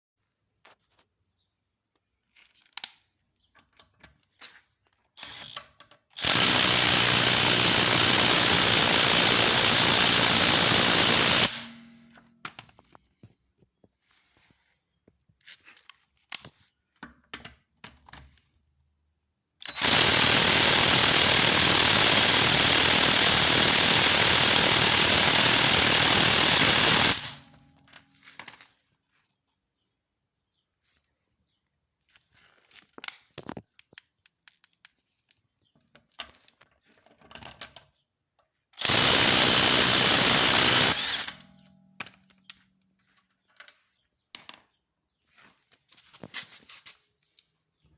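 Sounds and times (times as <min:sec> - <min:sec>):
impact wrench hammering: 0:06.2 - 0:12.1, 0:19.7 - 0:27.4, 0:38.8 - 0:41.4.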